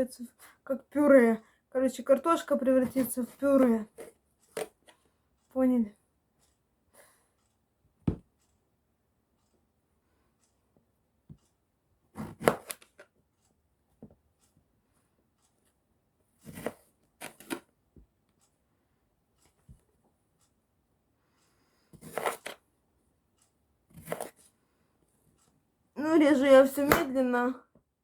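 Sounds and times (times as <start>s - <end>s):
knife cutting on cutting board: 12.2s - 12.8s, 16.4s - 17.6s, 22.0s - 22.6s, 23.9s - 24.4s.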